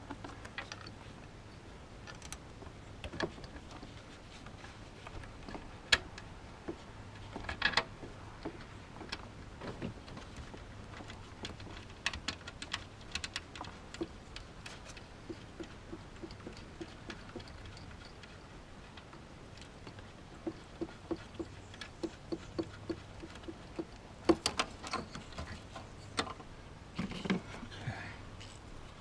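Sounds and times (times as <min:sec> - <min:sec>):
hand tools clicking and knocking: 0:11.0 - 0:26.4.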